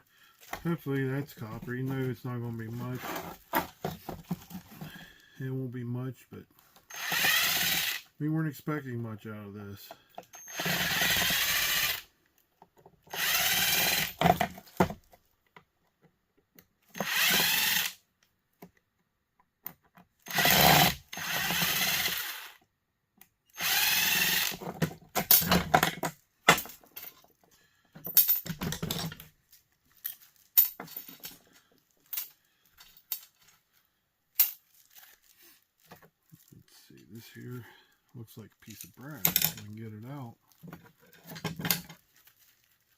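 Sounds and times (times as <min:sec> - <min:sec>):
power drill spinning: 0:06.8 - 0:08.1, 0:10.4 - 0:12.1, 0:13.1 - 0:14.5, 0:16.9 - 0:18.0, 0:20.2 - 0:22.6, 0:23.5 - 0:25.4.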